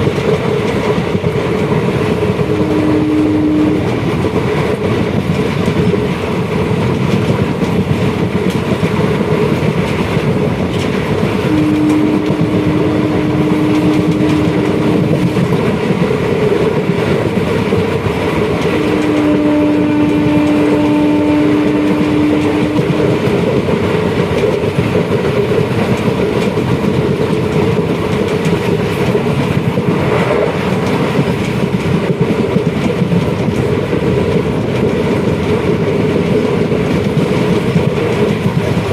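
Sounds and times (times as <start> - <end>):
train wheels rumbling and clattering: 0.0 - 38.9
train horn blasts: 2.4 - 4.0, 11.4 - 15.6, 18.6 - 23.4.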